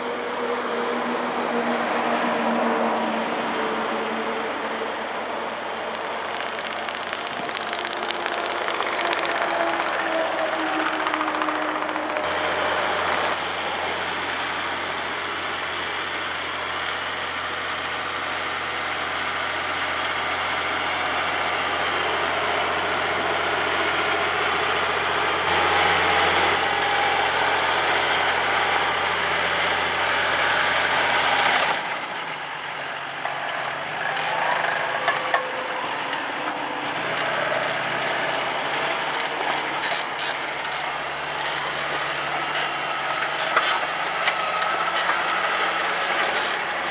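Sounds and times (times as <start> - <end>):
tractor diesel engine running: 0.0 - 46.9
sharp clicks: 5.9 - 12.3.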